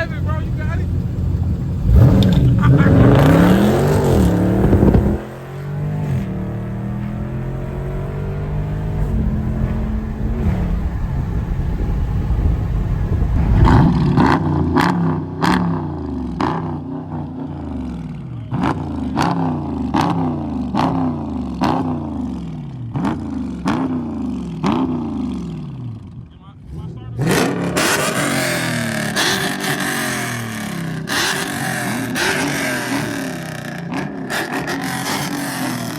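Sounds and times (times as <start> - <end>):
exhaust cracks: 0.0 - 22.0
car engine revving: 0.0 - 35.9.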